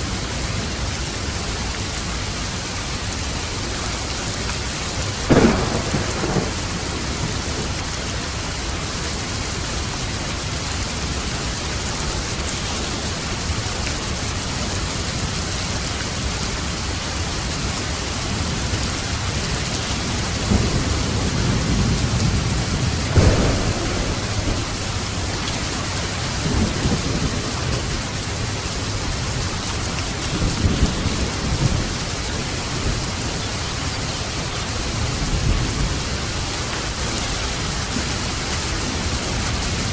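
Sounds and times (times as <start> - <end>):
steady rain: 0.0 - 39.9
thunder rumbling: 4.3 - 11.5, 17.6 - 39.9
thunder clap: 5.3 - 7.7, 20.3 - 28.2.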